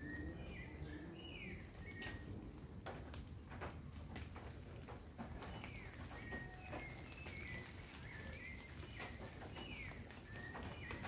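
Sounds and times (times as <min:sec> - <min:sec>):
small birds chirping: 0:00.0 - 0:02.6, 0:05.2 - 0:11.0
low city rumble: 0:00.0 - 0:11.0.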